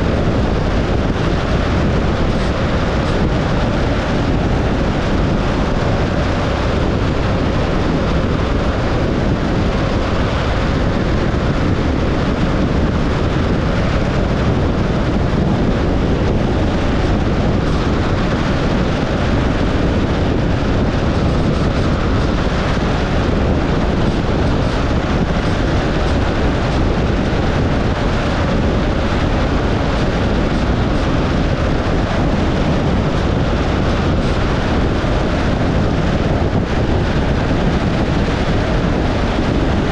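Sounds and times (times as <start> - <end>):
tyre and wind noise of car: 0.0 - 39.9.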